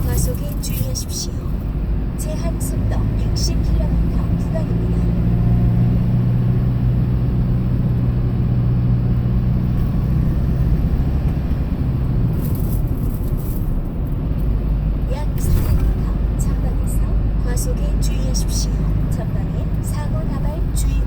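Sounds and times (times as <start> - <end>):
road rumble: 0.0 - 21.0
truck engine drone: 0.0 - 21.0.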